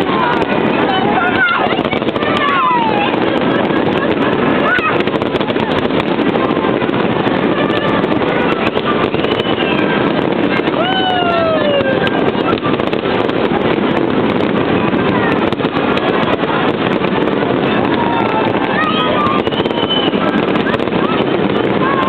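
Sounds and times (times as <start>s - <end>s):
crowd hubbub: 0.0s - 22.0s
fireworks crackling and popping: 0.0s - 22.0s
person whooping: 10.6s - 12.2s.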